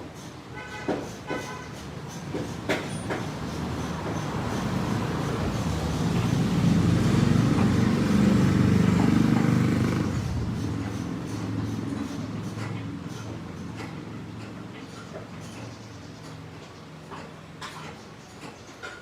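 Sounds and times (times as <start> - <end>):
vehicle engine running: 4.1 - 15.9.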